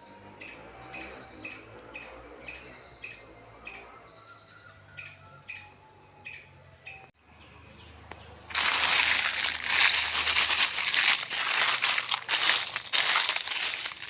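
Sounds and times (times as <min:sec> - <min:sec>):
loud crackling rustle: 0:08.5 - 0:14.0.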